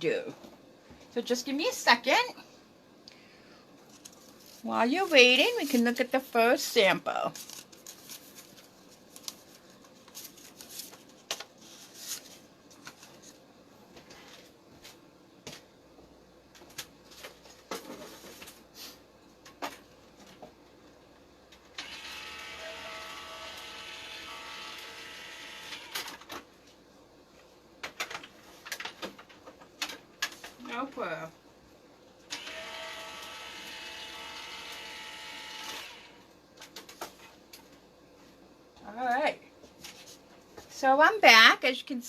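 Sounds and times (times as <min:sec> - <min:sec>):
die-cutting machine motor running: 0:21.8 - 0:25.9, 0:32.4 - 0:36.1.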